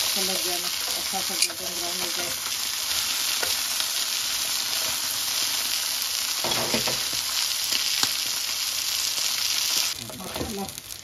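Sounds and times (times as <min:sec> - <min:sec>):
chicken and onions sizzling in oil: 0:00.0 - 0:11.0
tongs scraping a pan: 0:00.6 - 0:02.4.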